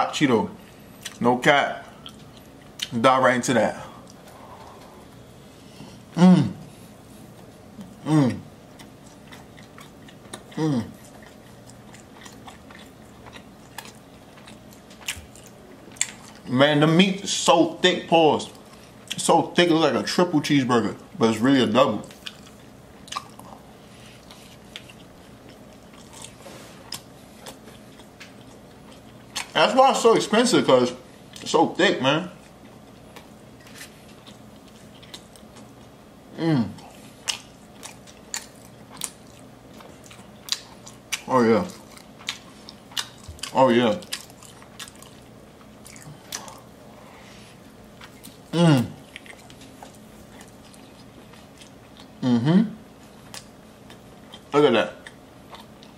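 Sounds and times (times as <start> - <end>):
man chewing with wet mouth clicks: 1.0 - 1.2, 1.8 - 3.0, 7.3 - 16.5, 18.5 - 19.2, 22.0 - 29.6, 31.2 - 31.5, 32.4 - 36.0, 36.8 - 46.8, 47.6 - 52.2, 53.0 - 55.9
man humming mmm: 6.1 - 6.7, 7.9 - 8.5, 10.5 - 11.0, 36.3 - 36.9, 48.5 - 49.0, 52.2 - 52.8.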